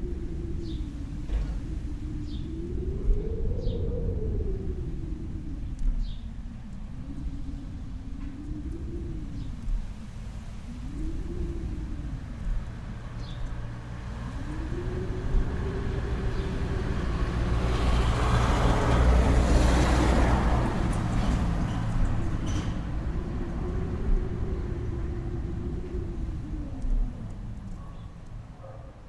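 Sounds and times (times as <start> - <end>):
vehicle passing with tyre noise: 12.2 - 29.0.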